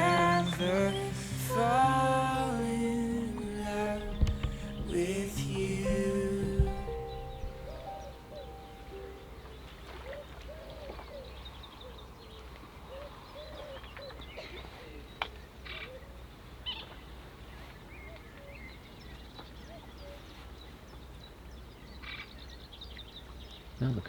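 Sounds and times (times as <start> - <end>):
small birds chirping: 0.0 - 12.5
low hooting bird calls: 0.0 - 14.4.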